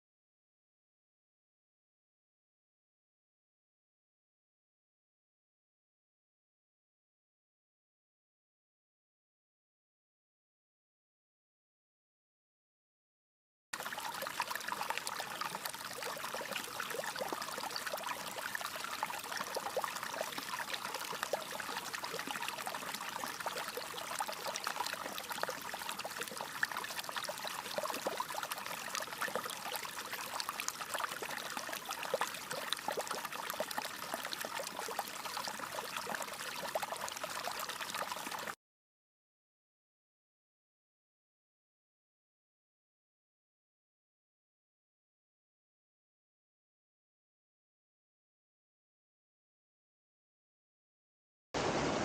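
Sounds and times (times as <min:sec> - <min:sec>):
water trickling and splashing: 0:13.8 - 0:38.6, 0:51.6 - 0:52.0.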